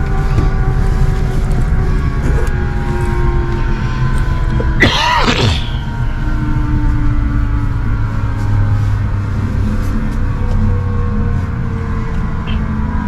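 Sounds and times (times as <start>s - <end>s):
steady whine: 0.0s - 8.8s
helicopter engine and rotors droning: 0.0s - 9.2s.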